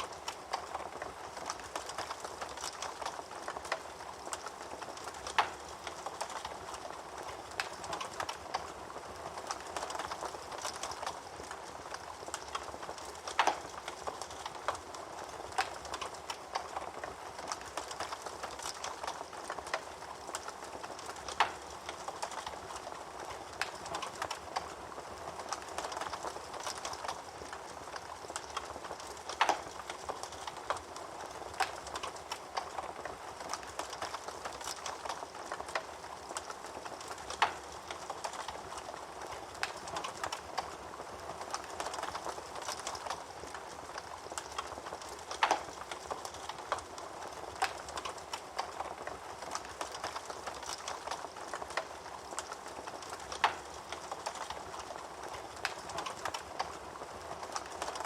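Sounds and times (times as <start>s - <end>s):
wood fire crackling: 0.0s - 58.0s
fire pops: 9.6s - 24.7s, 25.5s - 40.7s, 41.4s - 56.8s.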